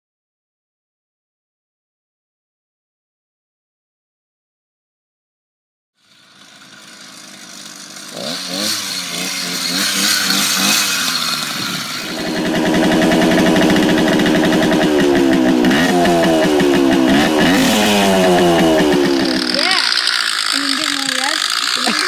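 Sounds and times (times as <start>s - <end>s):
dirt bike engine revving: 6.0s - 22.0s
motorized bicycle engine revving: 6.0s - 22.0s.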